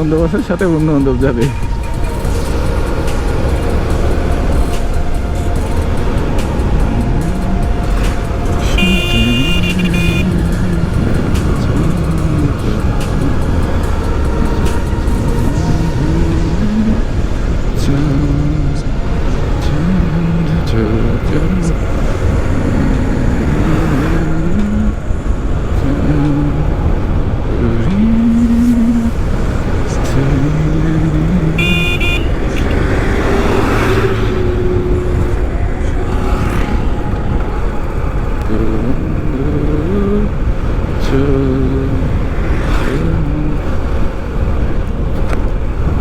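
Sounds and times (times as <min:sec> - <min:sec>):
motorcycle engine: 0:00.0 - 0:46.0
wind rumble on camera: 0:00.0 - 0:46.0
short horn toot: 0:08.6 - 0:11.7, 0:31.6 - 0:34.6.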